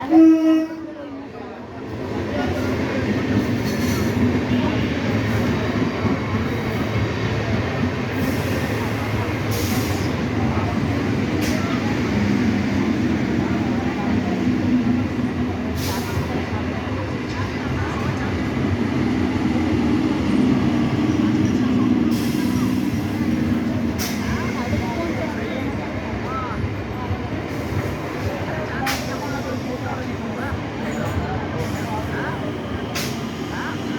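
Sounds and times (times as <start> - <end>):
train wheels rumbling on rails: 0.0 - 33.9.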